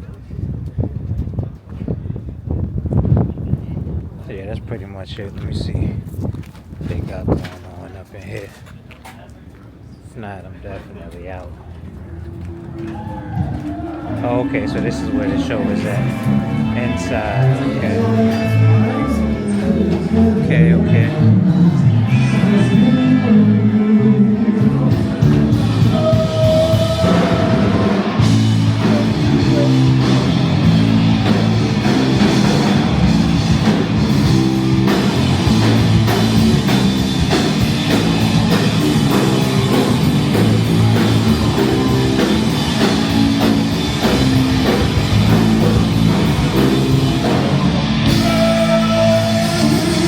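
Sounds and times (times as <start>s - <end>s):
electric guitar: 12.3s - 50.0s
person singing: 12.7s - 30.4s, 47.2s - 50.0s
drum kit beat: 24.5s - 50.0s.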